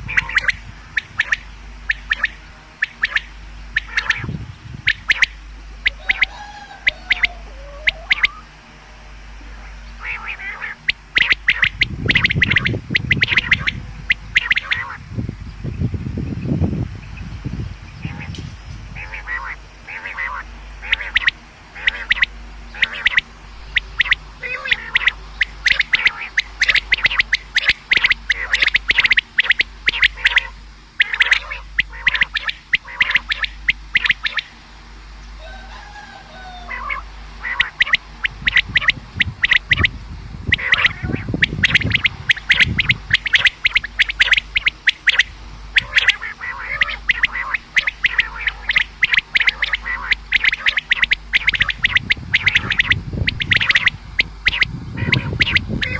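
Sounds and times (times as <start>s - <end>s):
quail calling sharp high notes: 0.0s - 4.3s, 4.9s - 8.6s, 9.6s - 15.0s, 19.0s - 34.6s, 35.4s - 55.9s
low rumble: 36.9s - 55.9s.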